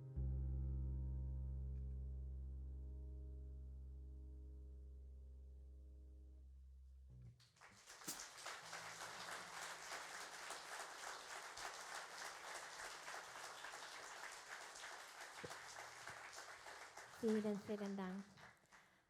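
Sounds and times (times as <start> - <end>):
audience applauding: 7.5 - 19.0.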